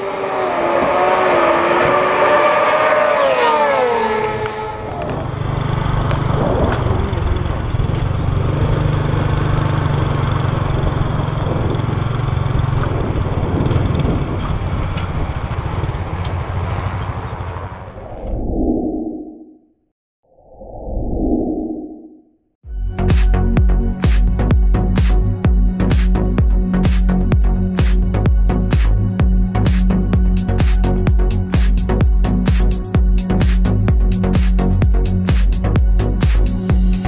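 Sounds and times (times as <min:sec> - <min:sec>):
motorcycle engine at high revs: 0:00.0 - 0:18.0
low rough engine rumble: 0:04.2 - 0:19.2, 0:22.7 - 0:37.0.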